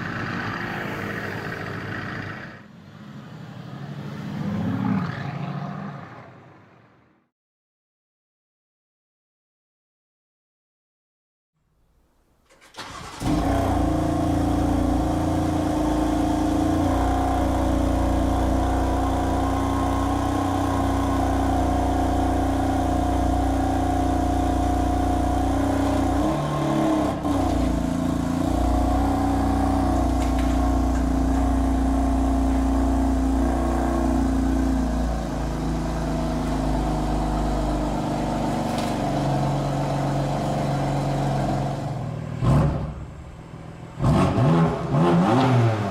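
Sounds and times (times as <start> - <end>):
car engine through loud exhaust: 13.2 - 45.9.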